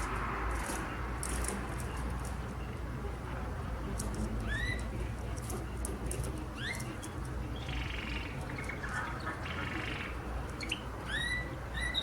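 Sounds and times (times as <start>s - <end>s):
canary chirping: 4.4s - 5.0s, 6.5s - 12.0s
buzzy rattling bird notes: 6.4s - 12.0s.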